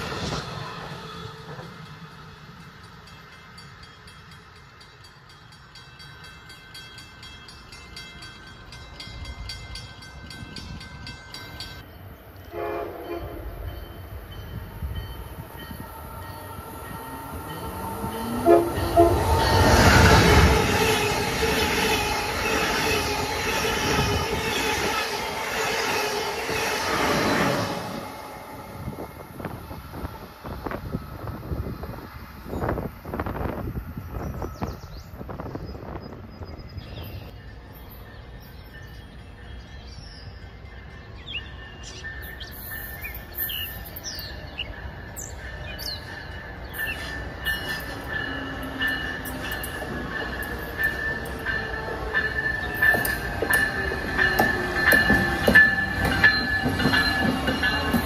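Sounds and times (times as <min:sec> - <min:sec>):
train passing at speed: 0:00.0 - 0:58.0
train horn blasts: 0:12.4 - 0:13.6, 0:17.9 - 0:20.5.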